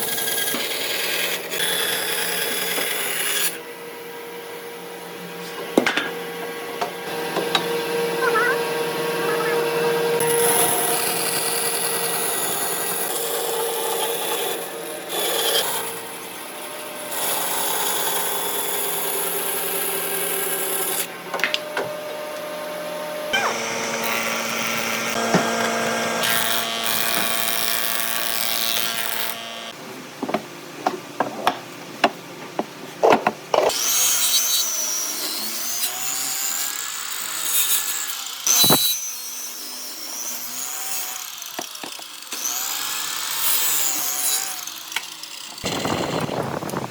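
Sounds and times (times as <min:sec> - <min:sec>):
power tools cutting wood: 0:00.0 - 0:29.8, 0:33.6 - 0:46.9
tools knocking on wood: 0:06.8 - 0:07.7, 0:30.2 - 0:33.7.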